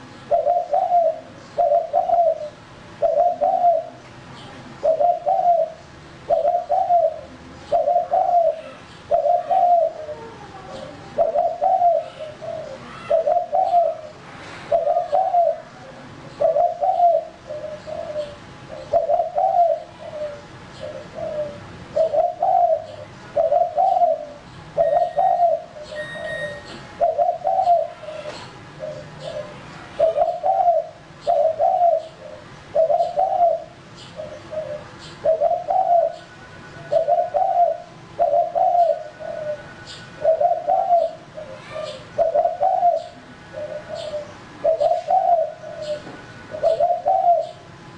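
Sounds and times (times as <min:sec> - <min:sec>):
dove cooing: 0:00.0 - 0:04.1, 0:04.7 - 0:47.9.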